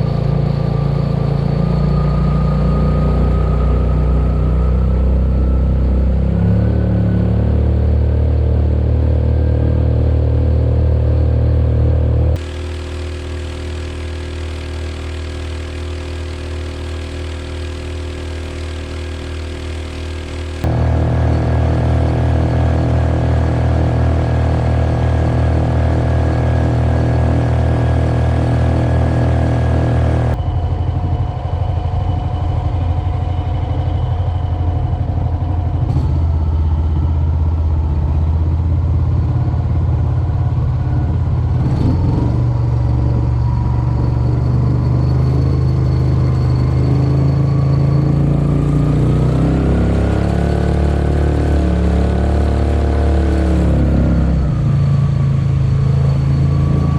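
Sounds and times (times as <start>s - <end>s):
small engine running: 0.0s - 56.9s.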